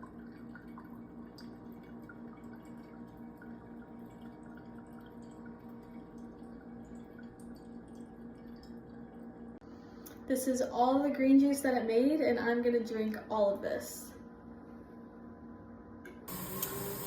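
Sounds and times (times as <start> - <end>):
juice dripping: 0.0 - 9.6, 16.3 - 17.0
low pulsing hum: 0.0 - 17.0.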